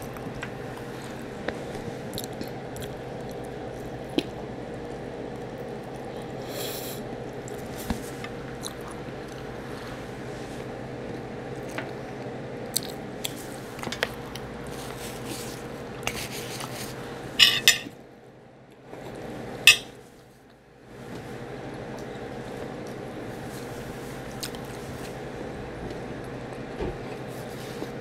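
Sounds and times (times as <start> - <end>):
background hum: 0.0 - 28.0
person chewing with mouth closed: 2.1 - 4.4, 24.3 - 24.8.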